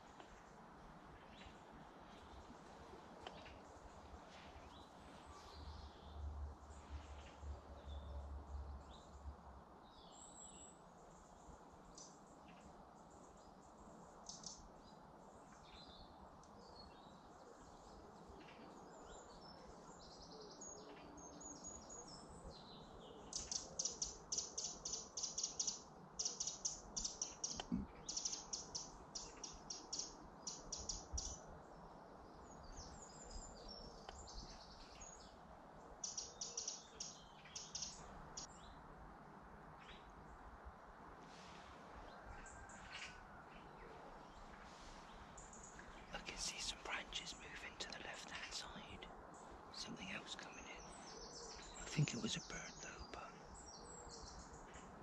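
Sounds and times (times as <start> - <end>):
faint steady hiss: 0.0 - 55.0
songbirds chirping: 0.0 - 55.0.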